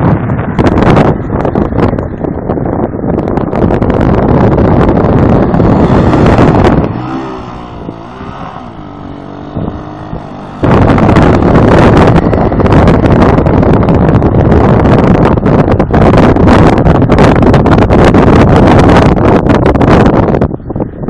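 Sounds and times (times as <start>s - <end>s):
wind buffeting microphone: 0.0s - 21.0s
atv engine rising and falling: 3.1s - 19.1s.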